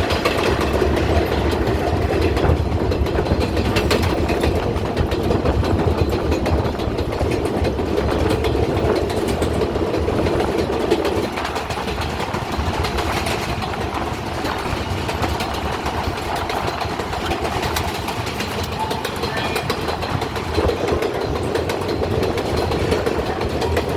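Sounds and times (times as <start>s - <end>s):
clicks over rail joints: 0.0s - 23.9s
subway train wheels rumbling on rail: 0.0s - 23.9s.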